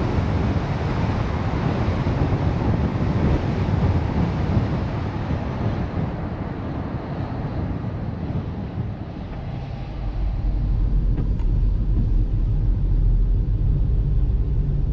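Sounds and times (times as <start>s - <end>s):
road and wind noise: 0.0s - 14.9s
low drone: 8.9s - 14.9s.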